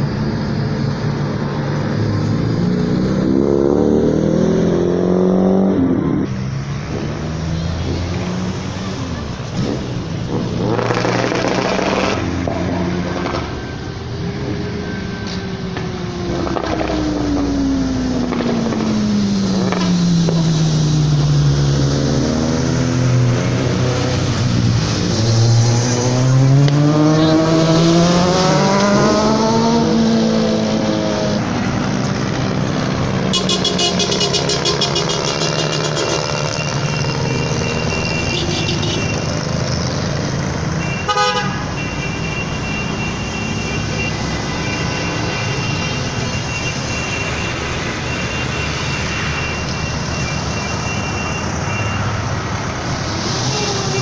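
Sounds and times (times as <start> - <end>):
other engines running: 6.3 - 25.8.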